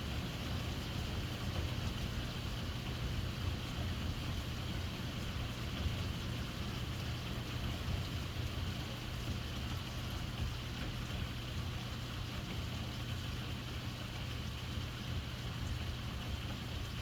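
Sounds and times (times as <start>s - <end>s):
heavy rain downpour: 0.0s - 17.0s.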